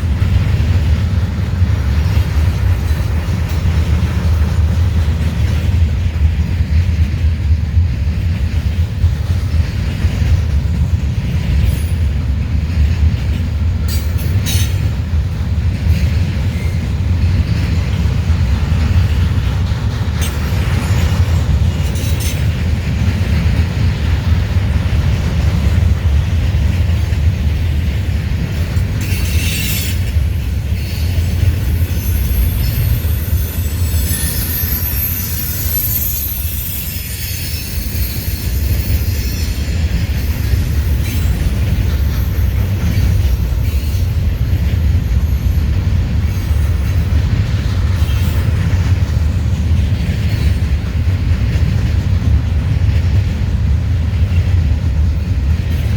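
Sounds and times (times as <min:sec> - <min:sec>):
freight train rumbling past: 0:00.0 - 0:55.9
high wheel squeal: 0:29.0 - 0:46.8.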